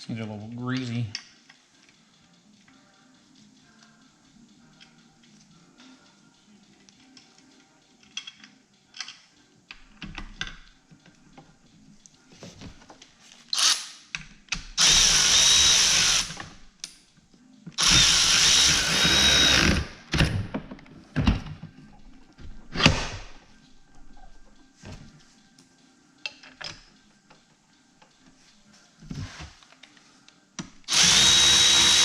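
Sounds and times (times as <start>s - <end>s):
clicks and knocks of handling parts: 6.7s - 13.4s, 20.1s - 28.4s
power drill running bolts in: 14.8s - 16.4s, 17.8s - 19.9s, 30.9s - 32.0s.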